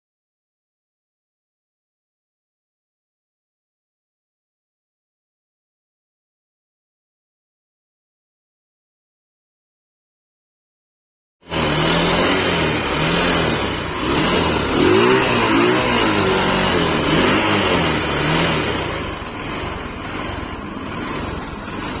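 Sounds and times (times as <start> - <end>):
motorcycle engine revving: 11.4 - 22.0.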